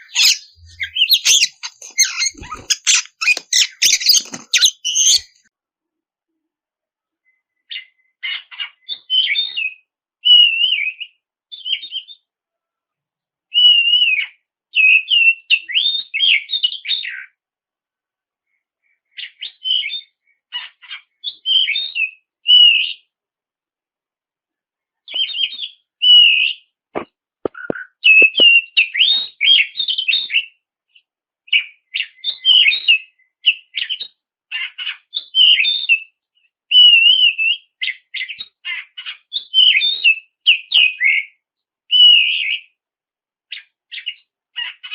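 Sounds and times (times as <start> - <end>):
magpie-robin singing whistled phrases: 0.0 - 5.4, 27.6 - 30.6, 31.5 - 42.8.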